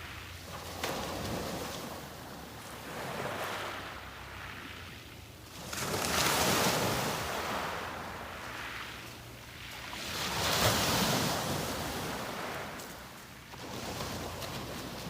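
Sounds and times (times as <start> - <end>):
sea waves breaking on beach: 0.0 - 15.0.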